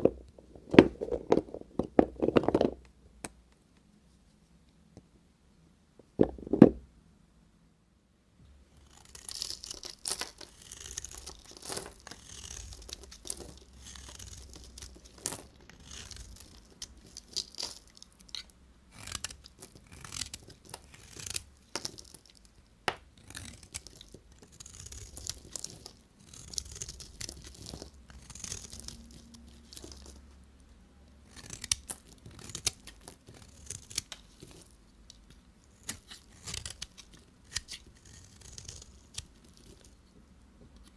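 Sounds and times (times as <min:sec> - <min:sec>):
knife scraping soap: 0:08.8 - 0:22.3, 0:23.2 - 0:30.2, 0:31.3 - 0:34.8, 0:35.7 - 0:39.9.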